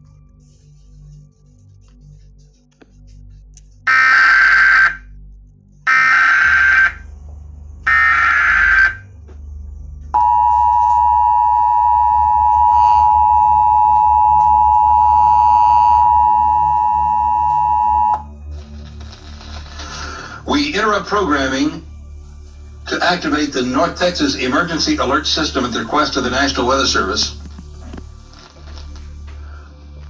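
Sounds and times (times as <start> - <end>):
screeching data noise bursts: 3.9 - 5.0, 5.9 - 7.0, 7.9 - 9.1
two-tone alert signal: 3.9 - 5.0, 10.2 - 18.2.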